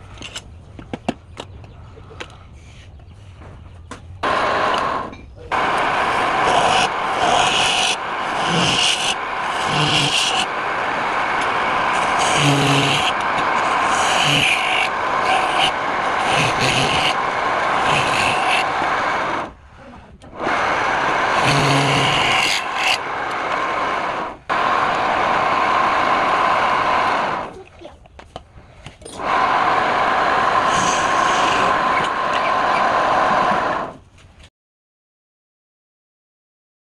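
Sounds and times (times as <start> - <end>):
wood lathe running: 4.2 - 19.6, 20.3 - 27.5, 29.2 - 34.0
turning tool scraping wood: 4.6 - 19.5, 21.1 - 23.4, 30.6 - 33.8.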